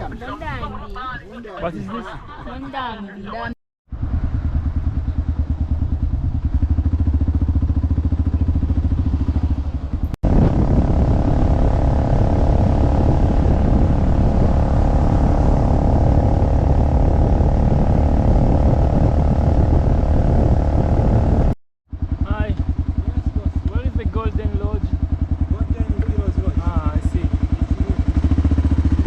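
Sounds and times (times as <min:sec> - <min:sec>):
motorcycle engine idling: 0:03.9 - 0:14.8, 0:21.9 - 0:29.0
motorcycle riding with wind rush: 0:03.9 - 0:29.0.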